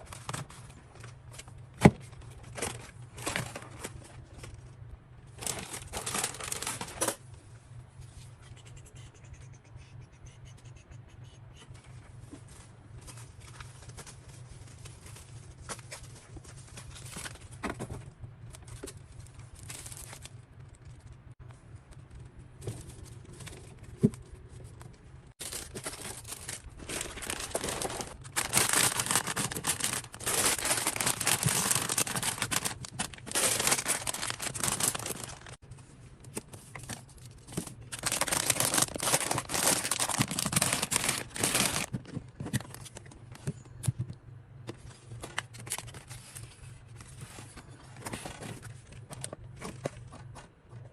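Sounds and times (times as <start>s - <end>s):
plastic packaging crinkling and tearing: 5.4s - 7.2s, 18.6s - 20.8s, 25.4s - 35.6s, 36.7s - 41.9s.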